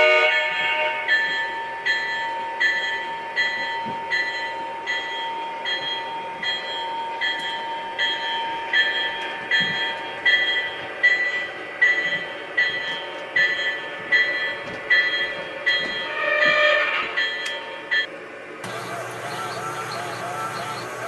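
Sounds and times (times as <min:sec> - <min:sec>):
train horn blast: 0:00.0 - 0:01.2, 0:16.0 - 0:17.9
locomotive bell ringing: 0:00.0 - 0:18.2.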